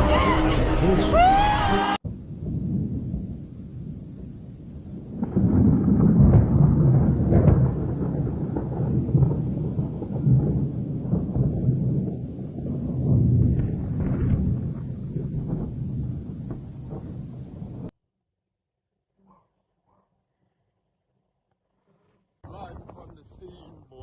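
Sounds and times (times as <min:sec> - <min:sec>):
wind buffeting microphone: 0:02.1 - 0:17.9.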